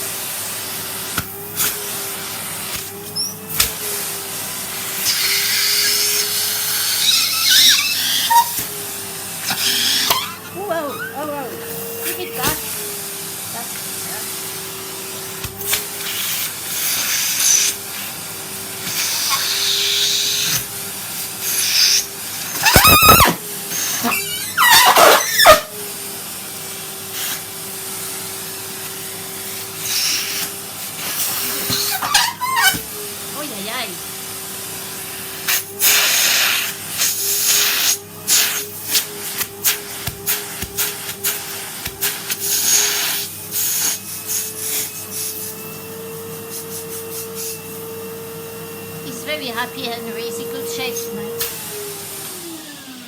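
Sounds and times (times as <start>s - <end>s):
vacuum cleaner running: 0.0s - 53.0s
vacuum nozzle sucking rushes: 0.0s - 53.0s
air squealing at nozzle: 6.9s - 8.7s, 9.5s - 12.6s, 21.7s - 23.4s, 24.0s - 25.6s, 31.8s - 32.8s.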